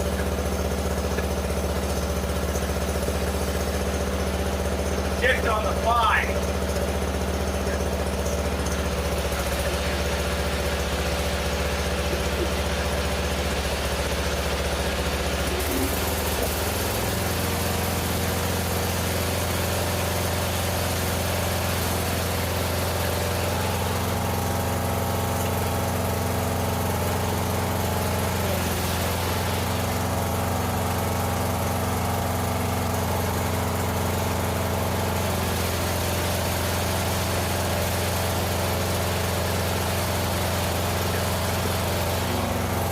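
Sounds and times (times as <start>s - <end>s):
lawn tractor engine running: 0.0s - 42.9s.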